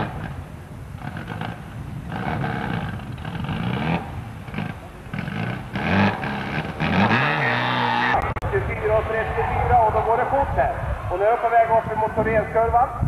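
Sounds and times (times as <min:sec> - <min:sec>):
rally car engine revving: 0:01.0 - 0:08.4.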